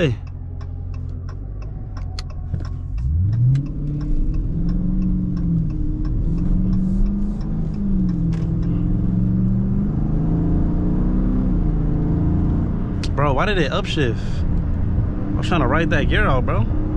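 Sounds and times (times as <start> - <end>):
fast regular ticking: 0.0 - 8.6
car engine revving hard: 2.2 - 13.7.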